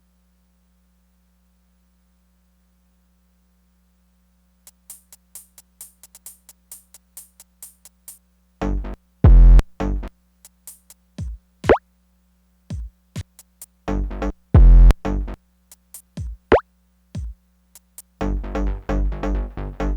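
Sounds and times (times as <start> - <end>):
deep bass drum hits: 9.3 - 9.6, 14.6 - 15.0.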